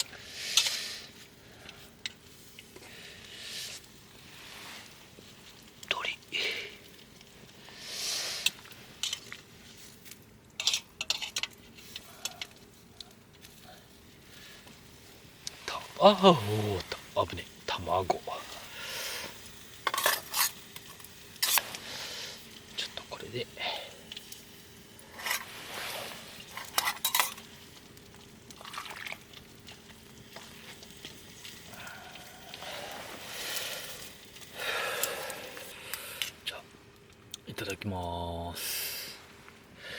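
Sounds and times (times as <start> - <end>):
utensils clinking against pot: 10.6 - 12.5, 19.8 - 21.7, 26.5 - 27.5.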